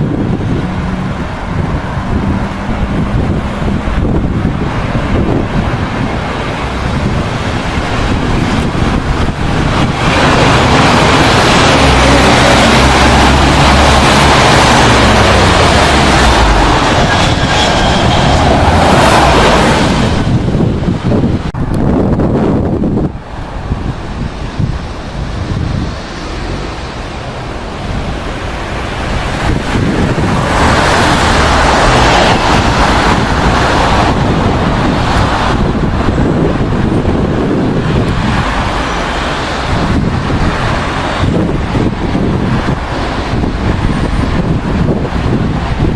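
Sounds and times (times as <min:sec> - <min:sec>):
jet airliner engine: 0:00.0 - 0:45.9
wind buffeting microphone: 0:00.0 - 0:45.9.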